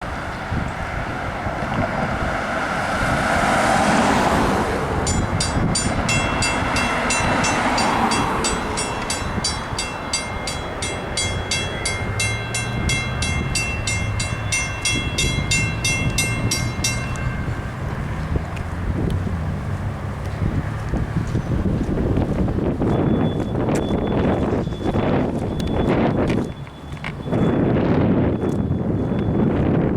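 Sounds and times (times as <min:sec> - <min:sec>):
rushing sound: 0:00.8 - 0:19.7
railroad crossing bell ringing: 0:03.8 - 0:18.6, 0:22.9 - 0:29.7.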